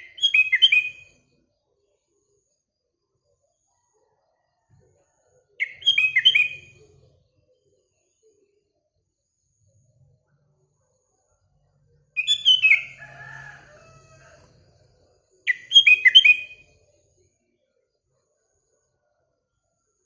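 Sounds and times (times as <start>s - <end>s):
fainter lower bird call: 0.0s - 1.2s, 5.6s - 6.9s, 12.2s - 14.3s, 15.5s - 16.7s
bird whistled call: 5.6s - 6.7s, 12.2s - 13.0s, 15.5s - 16.6s.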